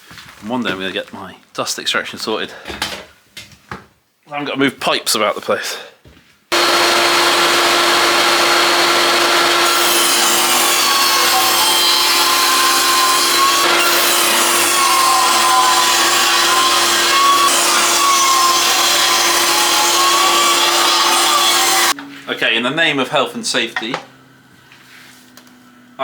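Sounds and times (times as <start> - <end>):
table saw ripping wood: 6.5 - 22.0.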